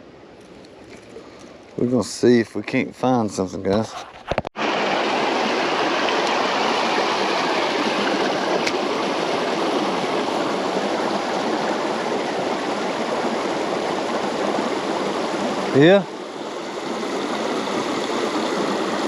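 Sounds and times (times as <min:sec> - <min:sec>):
creek water rushing: 0:04.6 - 0:19.0.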